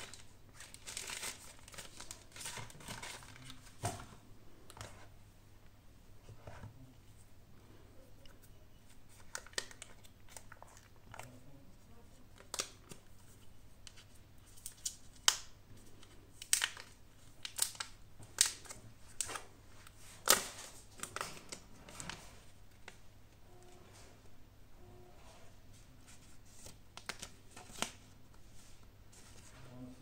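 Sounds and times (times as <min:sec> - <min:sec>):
packaging rustling: 0:00.0 - 0:03.8.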